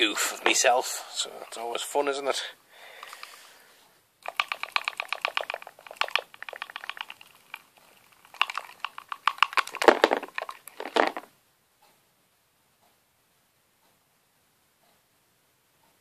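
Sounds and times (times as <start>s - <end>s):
plastic packaging crinkling: 8.3s - 11.3s.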